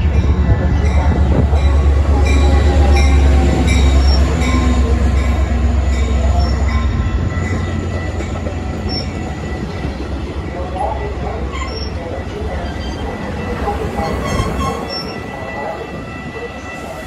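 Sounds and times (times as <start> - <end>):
train rumbling past: 0.0 - 17.0
metallic squealing: 6.0 - 10.0.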